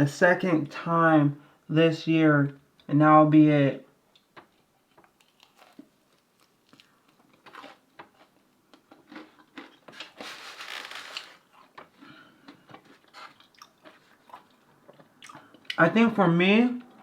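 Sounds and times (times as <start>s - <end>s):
rough rustling: 9.9s - 11.5s
chewing clicks and mouth noises: 11.6s - 15.8s.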